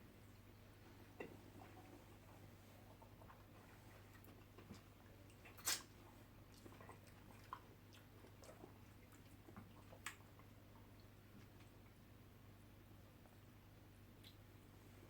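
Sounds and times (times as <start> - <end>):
wet chewing mouth clicks: 4.1 - 11.8, 14.2 - 14.4.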